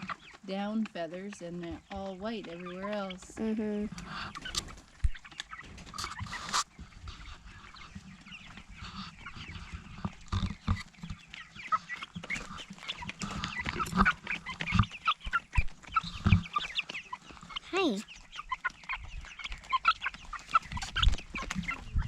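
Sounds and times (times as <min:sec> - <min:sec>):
chicks peeping and cheeping: 0:00.0 - 0:22.0
brief rustle: 0:05.7 - 0:06.7.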